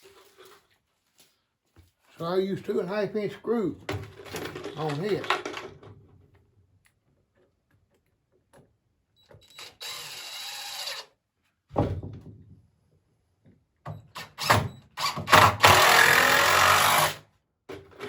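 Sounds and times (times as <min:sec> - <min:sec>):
power drill driving screw: 0:09.4 - 0:11.2, 0:14.2 - 0:17.3.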